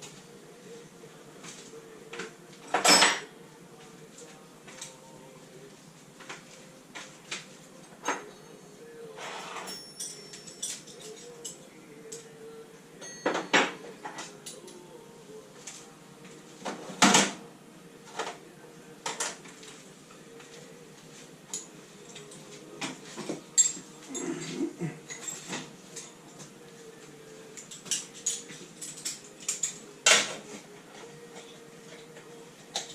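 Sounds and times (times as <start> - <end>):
metal tools clinking and knocking: 9.7 - 12.3, 23.2 - 24.4, 25.1 - 26.5, 27.6 - 30.4.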